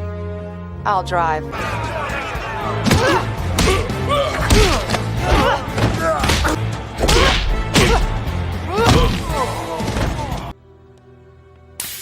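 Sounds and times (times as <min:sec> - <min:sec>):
dramatic score music: 0:00.0 - 0:12.0
voiced grunts or shouts: 0:01.6 - 0:10.5.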